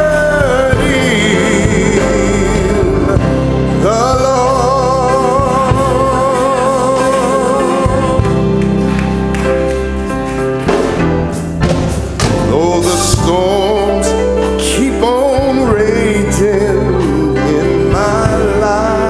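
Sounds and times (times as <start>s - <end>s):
person singing with vibrato: 0.0s - 9.3s, 12.3s - 19.0s
band accompaniment: 0.0s - 19.0s
steady bass: 0.0s - 19.0s
drum hits: 9.8s - 13.7s.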